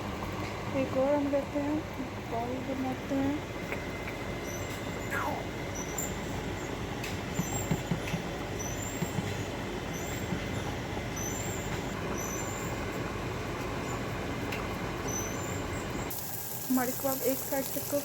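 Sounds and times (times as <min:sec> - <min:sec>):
meat sizzling in a pan: 0:16.1 - 0:18.0.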